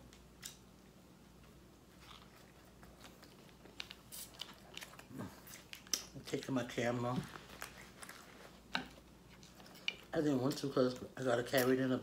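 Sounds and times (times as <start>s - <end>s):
person chewing: 1.9s - 6.4s.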